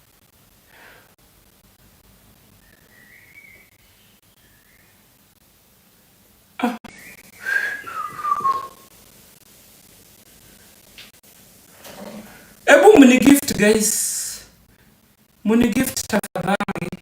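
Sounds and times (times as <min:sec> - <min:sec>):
person whistling: 0:06.9 - 0:08.9.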